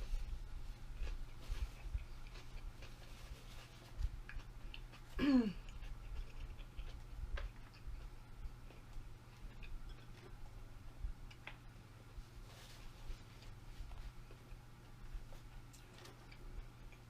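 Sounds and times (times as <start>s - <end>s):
chewing mouth clicks: 4.0s - 10.6s
person humming: 5.2s - 5.7s.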